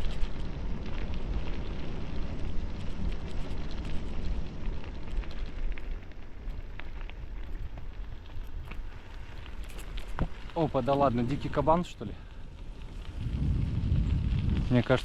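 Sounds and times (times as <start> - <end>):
bicycle tyres rolling on gravel: 0.0 - 15.0
stones crackling: 0.0 - 15.0
wind rumble on microphone: 0.0 - 15.0.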